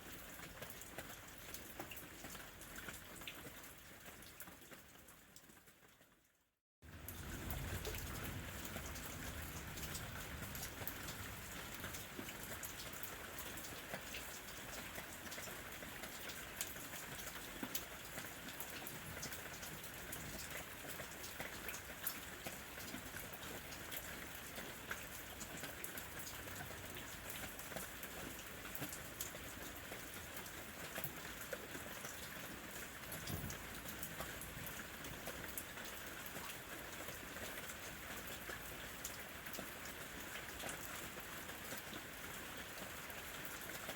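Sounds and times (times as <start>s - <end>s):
raindrops ticking sharply: 6.9s - 15.4s
steady rain hiss: 7.0s - 15.4s.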